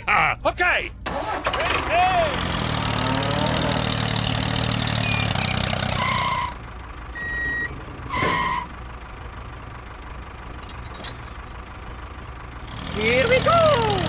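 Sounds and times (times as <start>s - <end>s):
low engine hum: 1.0s - 14.0s
short electronic vehicle beeps: 4.9s - 6.6s, 7.2s - 8.7s.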